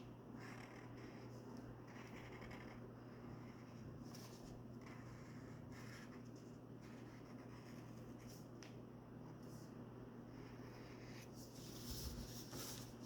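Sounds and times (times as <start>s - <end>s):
steady low hum: 0.0s - 13.0s
marker scratching on paper: 0.4s - 8.4s.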